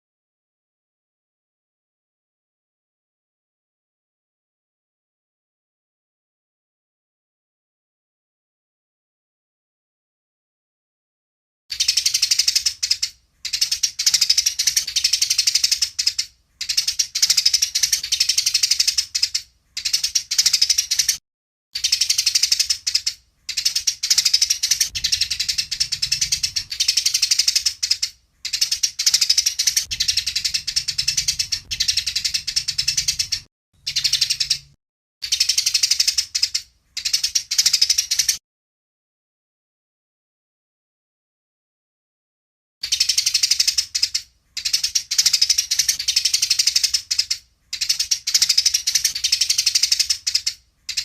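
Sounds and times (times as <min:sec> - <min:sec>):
sparrows chirping: 0:11.7 - 0:21.2, 0:21.8 - 0:38.4, 0:42.8 - 0:51.0.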